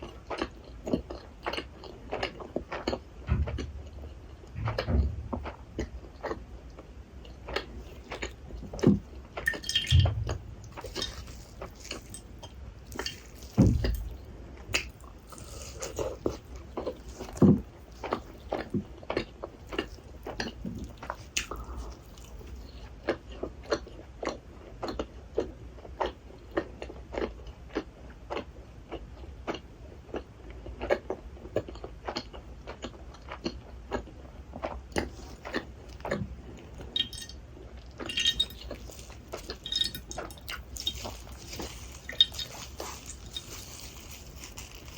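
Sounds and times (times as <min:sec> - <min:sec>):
bites and swallows: 0:09.5 - 0:23.9
wet chewing mouth clicks: 0:38.1 - 0:44.9.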